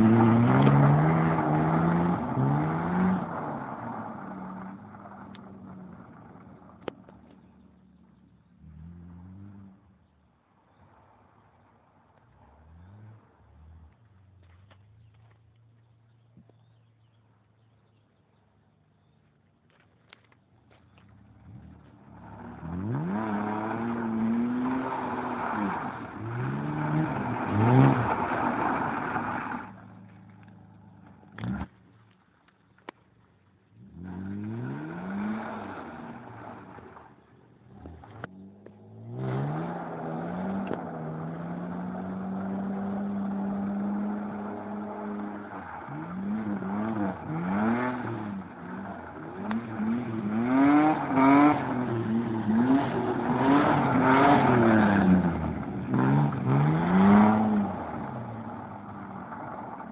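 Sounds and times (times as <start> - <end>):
car engine revving: 0.0 - 10.1, 20.7 - 31.9, 33.6 - 59.9.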